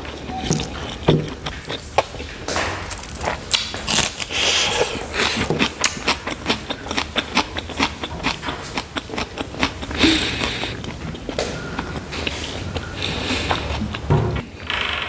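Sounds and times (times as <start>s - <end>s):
wet chewing clicks and smacks: 0.0s - 14.4s
breathy rush: 9.9s - 10.8s.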